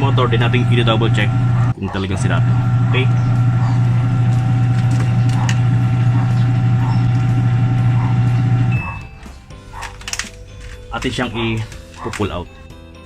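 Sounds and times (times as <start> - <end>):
washing machine motor hum: 0.0 - 9.3.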